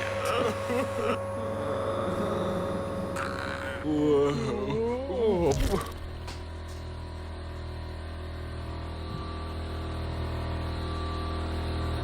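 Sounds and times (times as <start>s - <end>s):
vacuum cleaner running: 0.0s - 3.8s.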